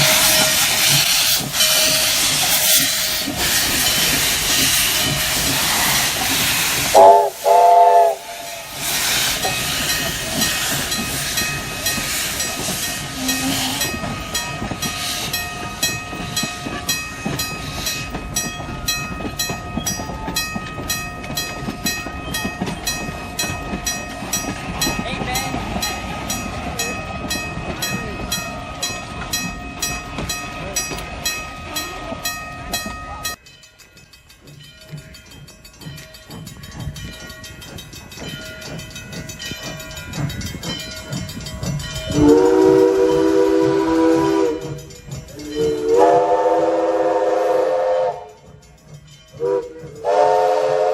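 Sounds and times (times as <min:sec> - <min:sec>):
steam train whistle: 0:00.0 - 0:09.5, 0:13.0 - 0:14.0, 0:42.1 - 0:48.5, 0:49.4 - 0:50.9
steam hissing: 0:00.0 - 0:33.3, 0:34.4 - 0:50.9
rhythmic beat of moving train: 0:00.0 - 0:50.9.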